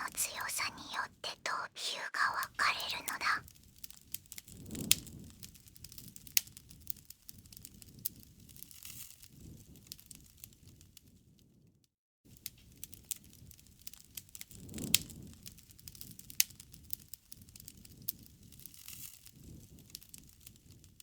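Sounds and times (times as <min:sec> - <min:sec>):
low rumble of flames: 0:04.2 - 0:11.2, 0:12.5 - 0:21.0.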